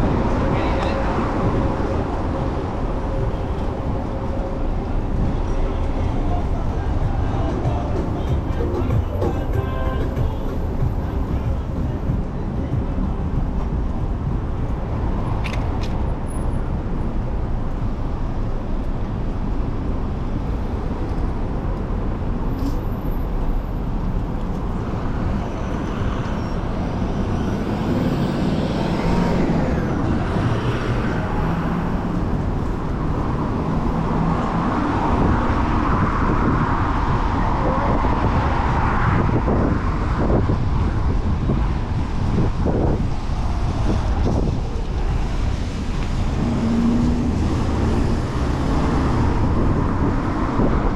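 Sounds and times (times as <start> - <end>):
motor vehicles passing: 0.0 - 50.9
wind rumble on microphone: 10.0 - 50.9.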